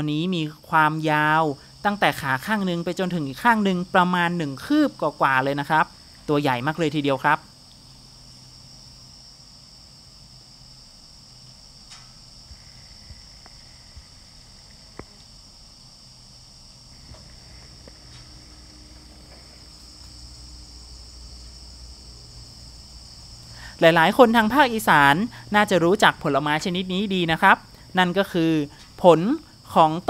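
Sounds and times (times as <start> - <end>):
insect chorus whine: 0.0 - 30.0
faint ticks and snaps: 11.8 - 12.2.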